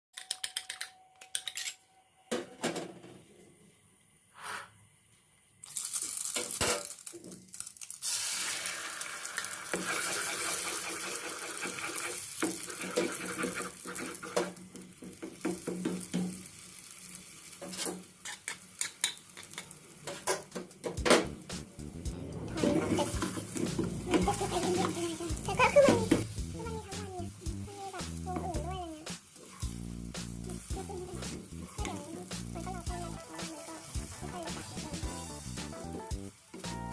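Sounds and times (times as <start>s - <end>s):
steady hiss: 23.0s - 36.9s.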